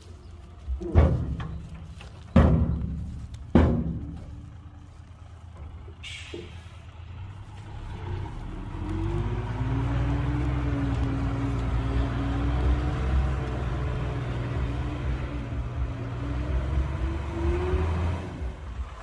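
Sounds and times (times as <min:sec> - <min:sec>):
diesel engine revving: 0:00.0 - 0:19.0
heavy thuds: 0:00.6 - 0:06.8
hiss of air: 0:06.0 - 0:06.8.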